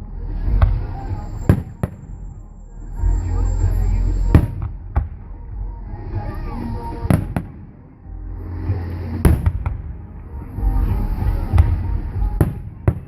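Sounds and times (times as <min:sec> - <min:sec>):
low rumble: 0:00.0 - 0:13.0
fireworks bursting with sharp bangs: 0:00.5 - 0:02.4, 0:06.9 - 0:08.0, 0:09.1 - 0:13.0.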